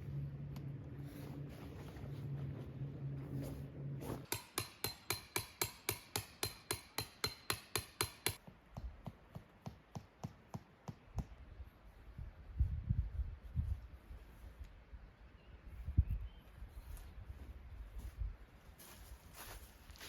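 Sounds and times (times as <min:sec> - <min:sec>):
hammer striking tent pegs: 0:04.0 - 0:08.4.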